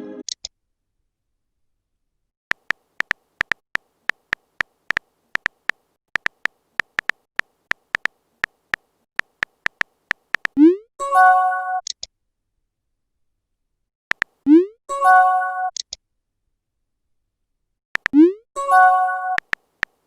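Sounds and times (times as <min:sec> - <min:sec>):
phone keyboard typing ticks: 0:02.5 - 0:10.6, 0:14.1 - 0:14.4, 0:18.0 - 0:18.4, 0:19.3 - 0:20.0.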